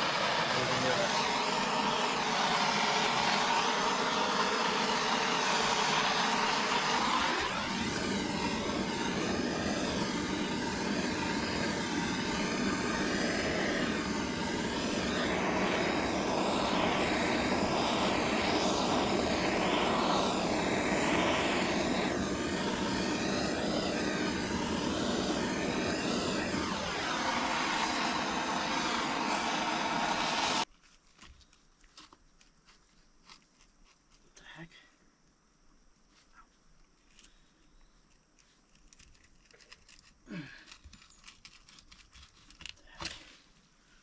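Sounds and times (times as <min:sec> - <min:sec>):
excavator diesel engine revving: 0:00.0 - 0:30.6
hydraulics working: 0:00.0 - 0:30.7.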